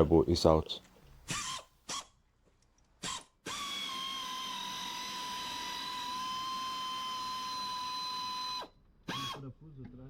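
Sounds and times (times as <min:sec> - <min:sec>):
power tool whining: 0:03.0 - 0:09.5.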